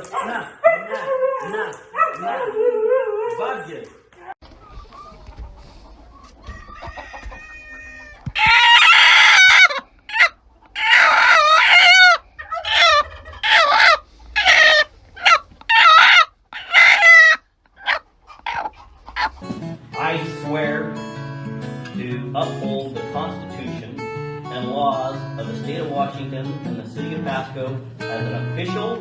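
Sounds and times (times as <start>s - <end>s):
chicken calling: 4.2s - 19.5s.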